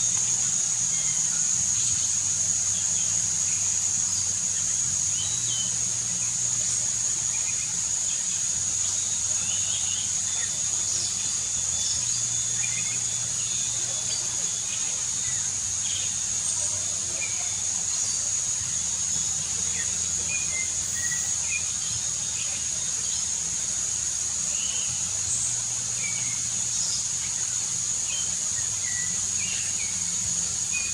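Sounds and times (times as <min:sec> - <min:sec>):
bird singing whistled notes: 0:05.0 - 0:06.4, 0:08.8 - 0:23.3, 0:24.5 - 0:30.9.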